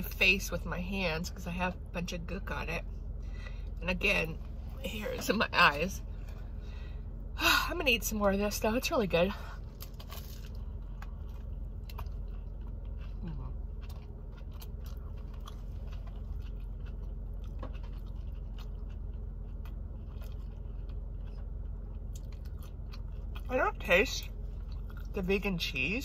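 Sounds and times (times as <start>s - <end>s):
steady low hum: 0.0s - 26.0s
person chewing sandwich: 9.6s - 23.5s, 24.2s - 25.2s.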